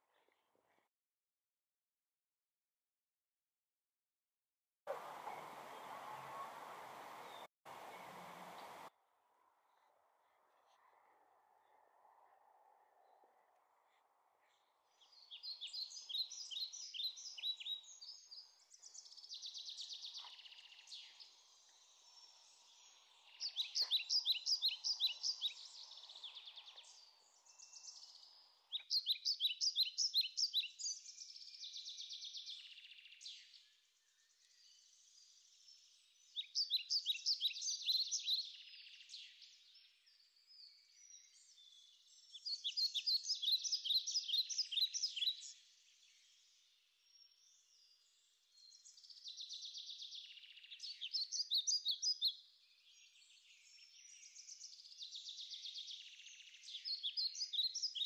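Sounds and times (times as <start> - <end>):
songbird singing: 4.9 - 8.9, 9.8 - 58.0
faint low hum: 4.9 - 14.7.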